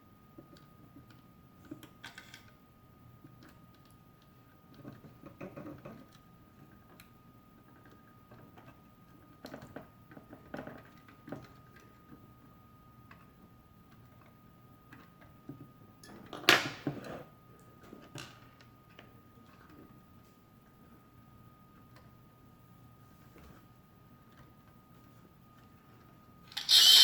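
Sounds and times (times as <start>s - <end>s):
clicks and knocks of toy mechanism: 1.1s - 2.6s, 26.5s - 27.0s
faint steady high tone: 26.6s - 27.0s.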